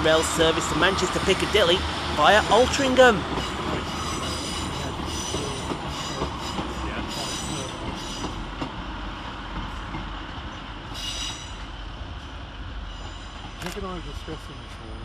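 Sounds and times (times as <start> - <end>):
diesel train rumbling: 0.0 - 15.0
high-pitched wheel squeal: 3.4 - 8.3.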